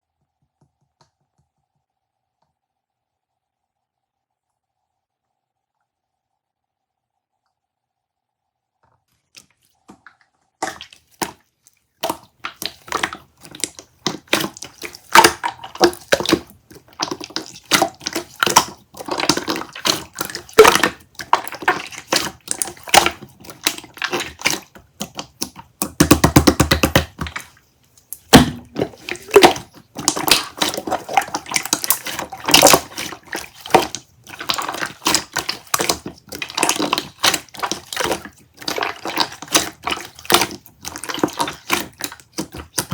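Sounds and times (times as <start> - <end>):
water pouring: 9.4 - 25.8, 26.4 - 42.9.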